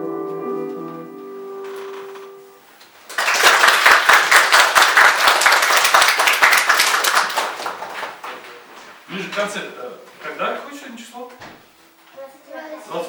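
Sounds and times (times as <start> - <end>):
piano chord: 0.0 - 2.7
audience applause: 3.1 - 8.5.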